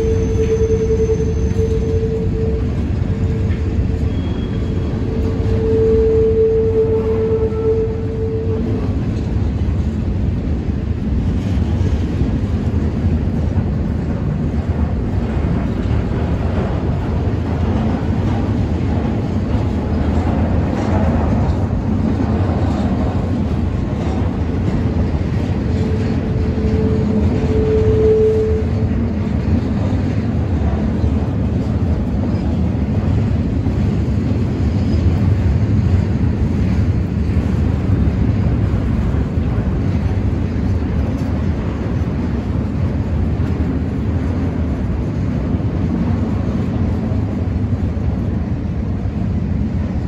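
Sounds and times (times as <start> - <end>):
high wheel squeal: 0.0 - 8.9
steel wheels rolling on track: 0.0 - 50.0.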